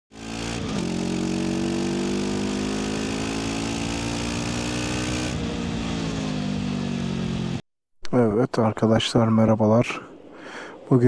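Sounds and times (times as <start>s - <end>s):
motorcycle engine running: 0.1s - 7.6s.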